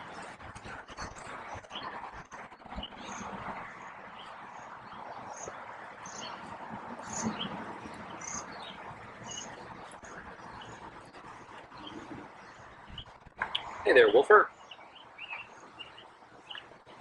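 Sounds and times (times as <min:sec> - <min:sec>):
outdoor background hiss: 0:00.0 - 0:17.0
small bird chirping: 0:04.1 - 0:07.5, 0:08.1 - 0:16.7.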